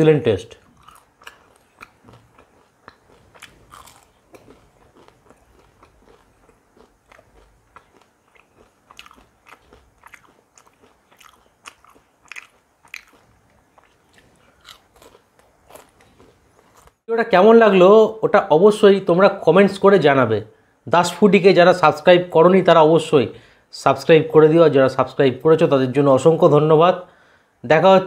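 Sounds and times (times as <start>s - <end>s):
person chewing crunchy sweet: 0.6s - 17.0s.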